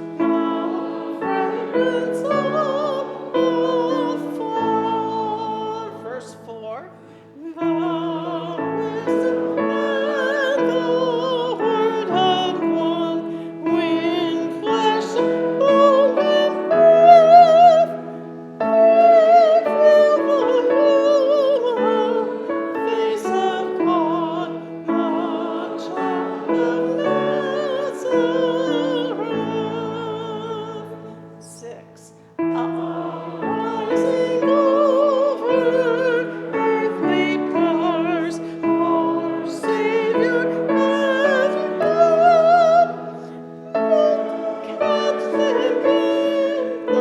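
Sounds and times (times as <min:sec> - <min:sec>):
congregation singing a hymn: 0:00.0 - 0:47.0.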